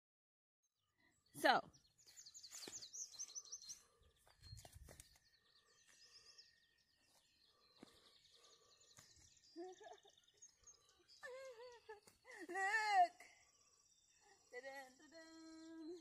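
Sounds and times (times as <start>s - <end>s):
songbird chirping: 0.7s - 16.0s.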